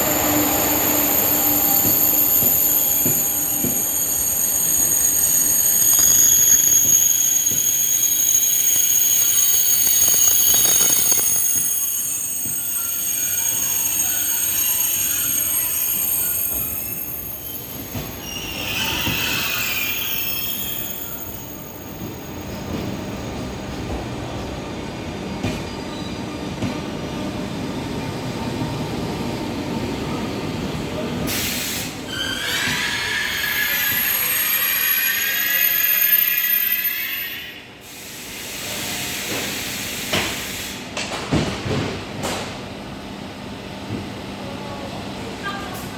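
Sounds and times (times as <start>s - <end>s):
train brakes and wheels squealing: 0.0s - 24.0s, 31.0s - 41.2s
high-speed train rumbling: 0.0s - 45.9s.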